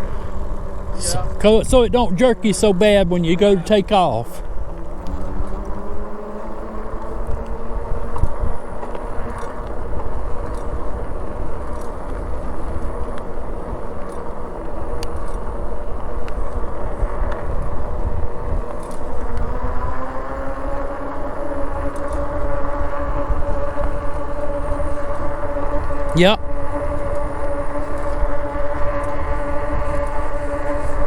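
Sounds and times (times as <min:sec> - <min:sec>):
wind rushing over microphone: 0:00.0 - 0:03.6, 0:14.7 - 0:31.0
electric motor whine: 0:00.0 - 0:03.8, 0:04.4 - 0:31.0.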